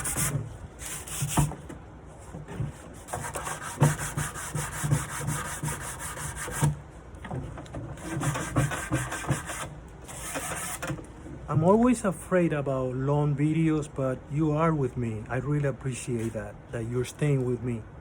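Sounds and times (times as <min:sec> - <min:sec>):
sandpaper scratching wood: 0:00.0 - 0:01.5, 0:03.0 - 0:06.7, 0:08.0 - 0:10.8.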